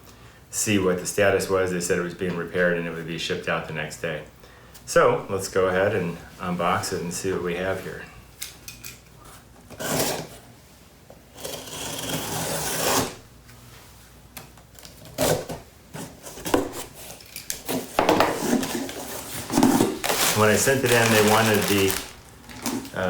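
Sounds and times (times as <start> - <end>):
cardboard rustling: 15.2 - 23.0.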